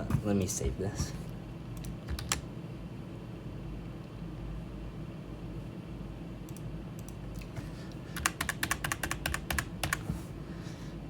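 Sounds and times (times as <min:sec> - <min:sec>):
steady low hum: 0:00.0 - 0:11.0
typing on computer keyboard: 0:01.8 - 0:02.4, 0:08.1 - 0:10.1.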